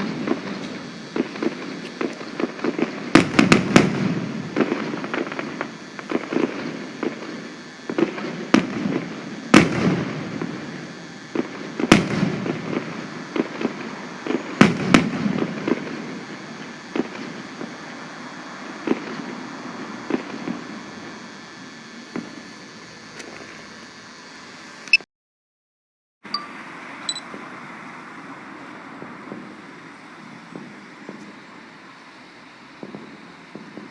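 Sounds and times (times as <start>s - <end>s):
fireworks bangs: 0.0s - 17.8s
fireworks crackling and rumbling: 0.0s - 24.6s, 27.3s - 33.9s.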